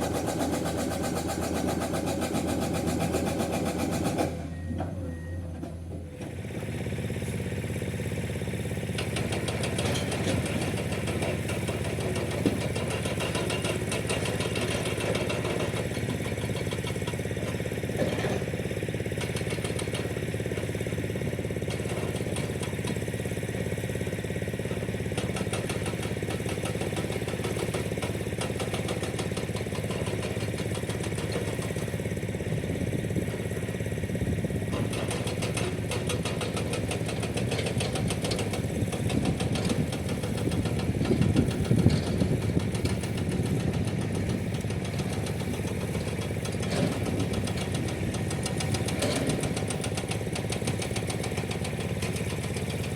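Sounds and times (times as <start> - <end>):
diesel engine running: 0.0 - 52.9
hydraulic breaker hammering rock: 8.9 - 20.7, 24.5 - 52.9.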